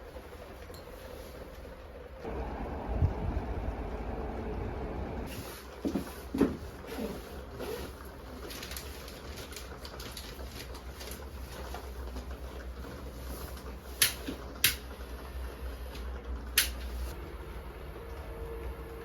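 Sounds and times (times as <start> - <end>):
low steady rumble: 2.0 - 5.3.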